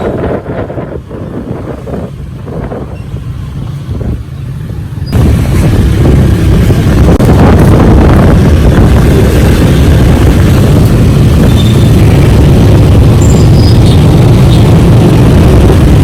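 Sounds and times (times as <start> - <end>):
road noise: 0.0 - 16.0
wind buffeting microphone: 0.0 - 16.0.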